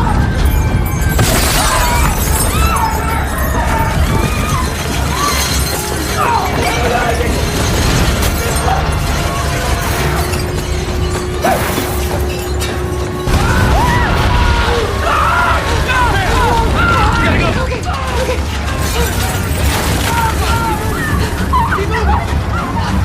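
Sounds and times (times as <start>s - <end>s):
deep earthquake rumble: 0.0s - 11.5s, 12.1s - 23.0s
people crying out: 0.0s - 23.0s
glass shattering: 0.8s - 14.0s, 17.9s - 21.6s
crashes: 0.9s - 22.5s.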